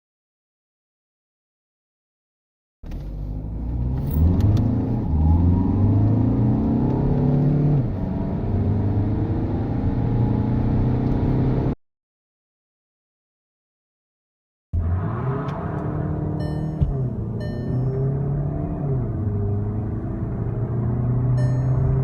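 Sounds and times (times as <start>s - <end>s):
car engine accelerating hard: 3.0s - 11.8s, 14.8s - 22.0s.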